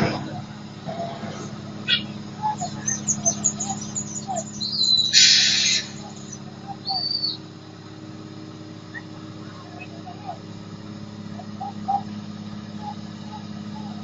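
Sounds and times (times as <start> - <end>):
birds chirping: 0.0 - 14.0
heavy engines droning: 0.0 - 14.0
short loud hiss: 5.2 - 5.8.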